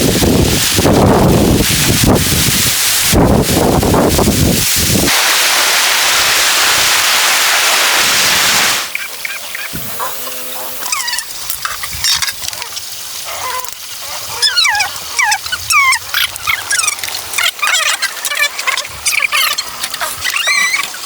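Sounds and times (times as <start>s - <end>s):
high sliding chirps: 8.2s - 11.5s.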